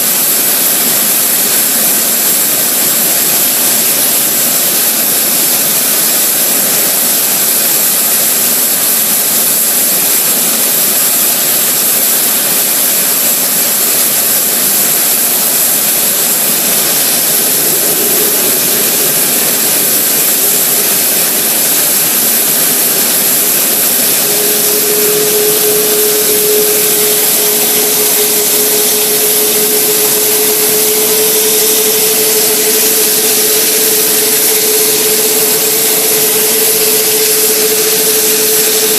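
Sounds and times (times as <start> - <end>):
high engine whine: 0.0 - 38.9
jet engine running loud: 0.0 - 38.9
lower steady tone: 13.0 - 38.9.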